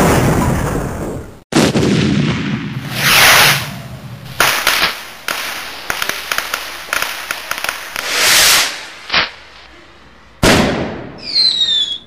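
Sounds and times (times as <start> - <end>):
fireworks cracks: 1.5 - 9.7
rapid crackling pops: 2.7 - 8.1
fireworks hissing burst: 2.8 - 9.7.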